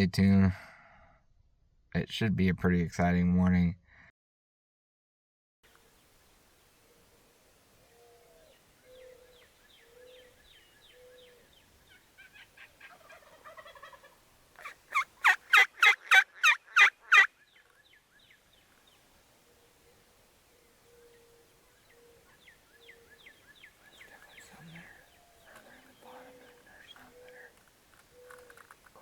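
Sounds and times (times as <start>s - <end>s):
turkey gobbling: 12.2s - 17.3s
turkey sharp notes: 12.9s - 17.3s.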